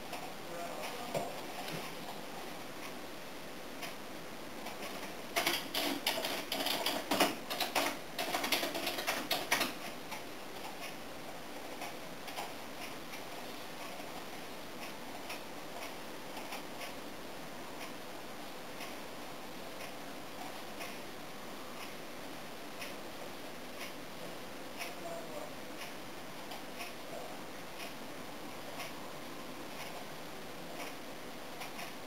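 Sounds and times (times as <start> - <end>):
precipitation ticking on hard surface: 4.6 - 11.0.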